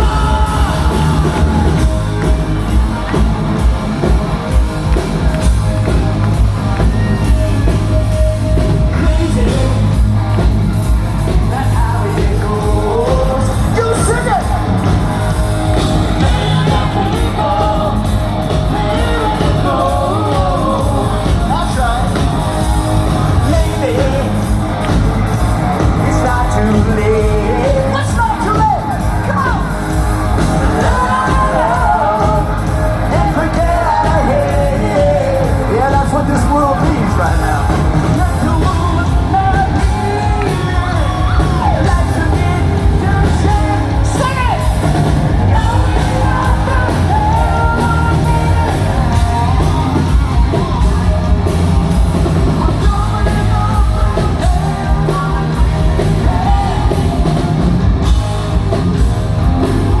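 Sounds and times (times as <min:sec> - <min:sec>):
crowd yelling: 0:00.0 - 1:00.0
live rock band playing: 0:00.0 - 1:00.0
person singing: 0:00.0 - 1:00.0.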